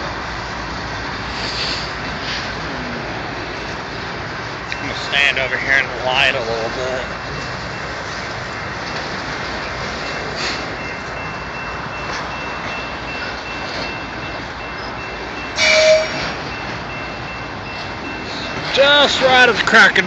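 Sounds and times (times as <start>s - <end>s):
train wheels rushing on rail: 0.0s - 20.0s
short loud tone: 15.5s - 16.4s.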